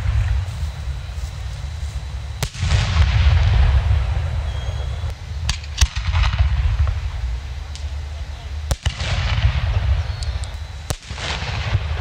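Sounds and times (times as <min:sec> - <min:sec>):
deep firework boom: 0:02.4 - 0:07.7, 0:08.6 - 0:12.0
sharp firework bangs: 0:02.4 - 0:08.0, 0:08.6 - 0:12.0.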